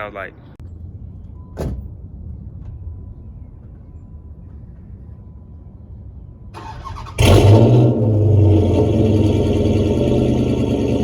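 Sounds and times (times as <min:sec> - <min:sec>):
car engine firing and idling: 0:06.6 - 0:11.0.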